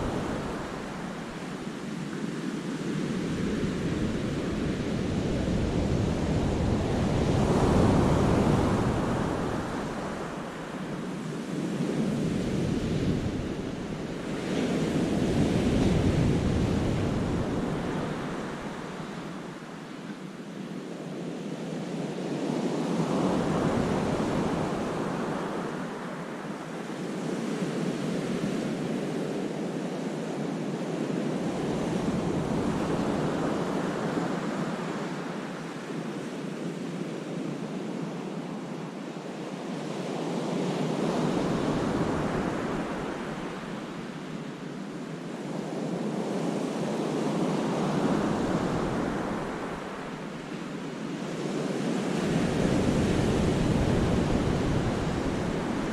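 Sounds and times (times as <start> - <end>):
wind buffeting microphone: 52.2 - 55.9.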